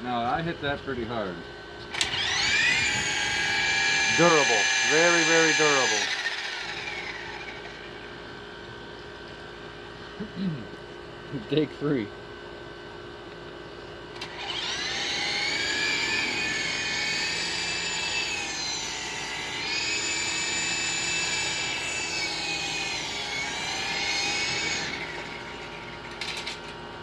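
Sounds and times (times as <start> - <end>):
rc helicopter motor whine: 1.9 - 8.6, 14.1 - 27.0.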